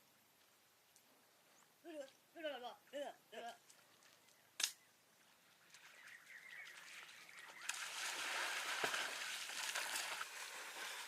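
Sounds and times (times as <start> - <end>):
water splashing and sloshing: 5.2 - 11.0.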